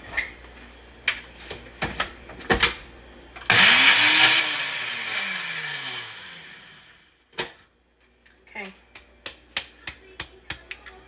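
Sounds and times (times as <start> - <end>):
blender motor whining: 3.5 - 7.1.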